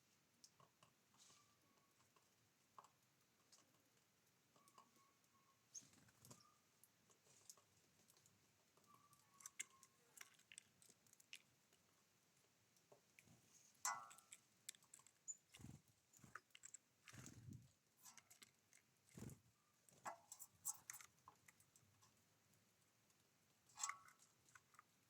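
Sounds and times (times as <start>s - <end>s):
birds pecking and tapping: 0.1s - 25.0s
thin bird chirps: 4.5s - 6.8s, 8.8s - 10.4s, 15.0s - 18.3s.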